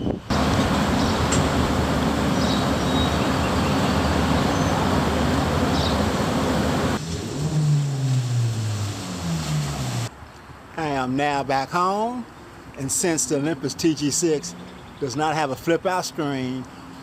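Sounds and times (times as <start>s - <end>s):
traffic on wet road: 0.3s - 10.1s.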